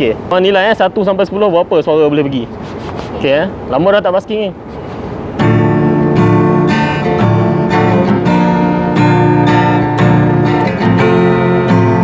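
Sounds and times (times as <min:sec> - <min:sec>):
acoustic guitar strummed chords: 0:04.9 - 0:12.0.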